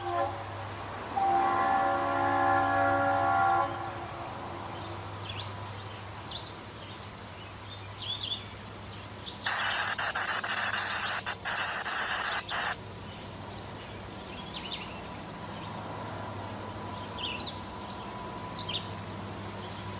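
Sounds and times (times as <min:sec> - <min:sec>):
birds chirping: 0:09.3 - 0:12.8
loud hissing noise: 0:09.3 - 0:12.9.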